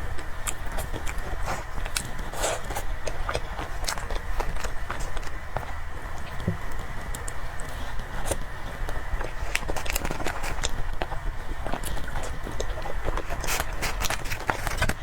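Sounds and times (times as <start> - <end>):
person chewing: 0.0 - 15.0.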